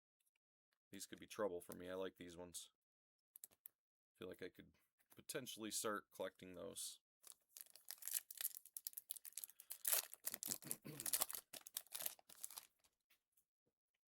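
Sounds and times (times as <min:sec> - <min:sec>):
wrapper tearing and crinkling: 0:07.6 - 0:12.8.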